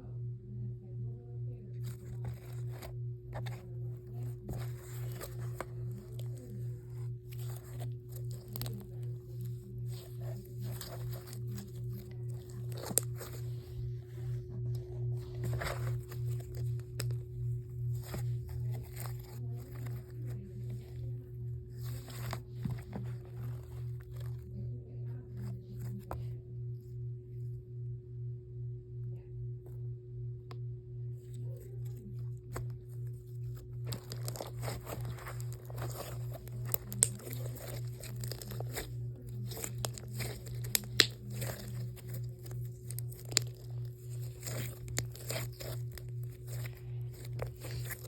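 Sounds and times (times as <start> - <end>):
low pulsing hum: 0.0 - 48.0
slime squished by hand: 1.8 - 17.3, 31.6 - 48.0.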